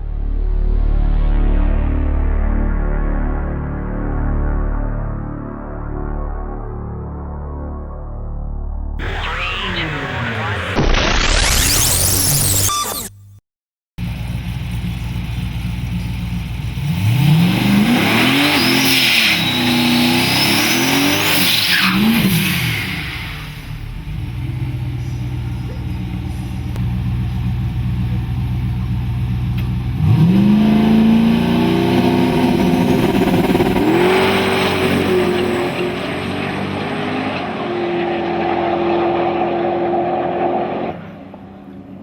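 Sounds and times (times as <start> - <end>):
pickup truck accelerating: 14.0 - 42.0.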